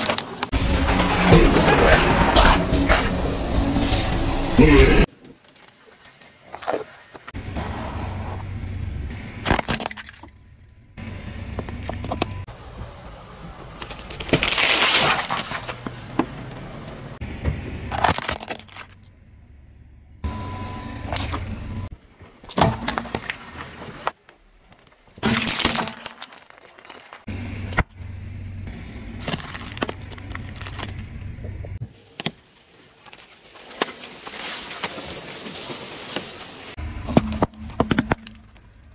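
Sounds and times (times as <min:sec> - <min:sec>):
low car rumble: 0:07.4 - 0:09.5, 0:10.1 - 0:22.0, 0:27.3 - 0:31.8
tyre crushing brittle objects: 0:13.8 - 0:16.3, 0:17.9 - 0:19.0, 0:22.4 - 0:27.9, 0:29.1 - 0:31.1.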